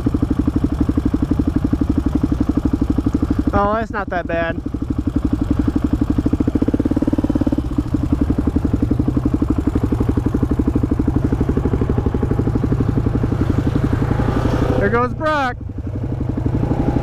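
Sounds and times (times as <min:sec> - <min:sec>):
quad engine running: 0:00.0 - 0:17.0.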